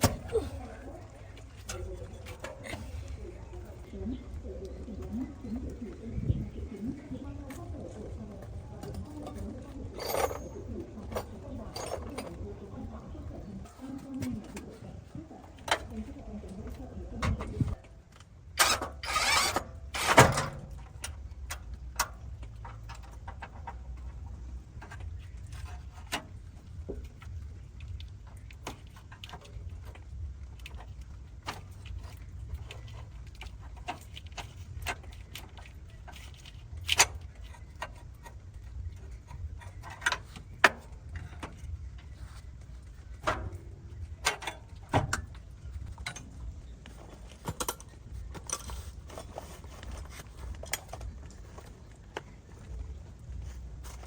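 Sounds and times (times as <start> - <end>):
steady low rumble: 0.0 - 18.6.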